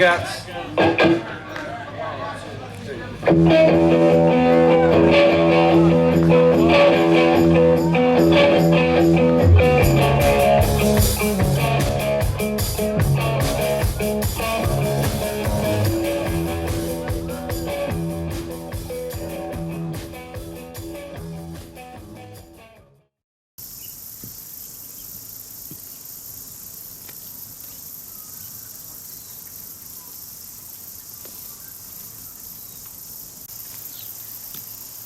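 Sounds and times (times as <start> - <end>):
blues-rock band playing: 0.8 - 1.3, 3.2 - 22.8
drums beating: 3.2 - 22.3
electric guitar chord ringing: 3.3 - 21.4.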